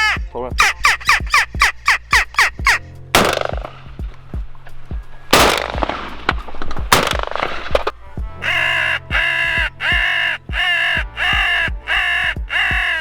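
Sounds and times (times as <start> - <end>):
crows cawing: 0.0 - 2.8, 8.4 - 13.0
shotgun shots with echo: 3.2 - 3.7, 5.3 - 6.1, 6.9 - 7.6.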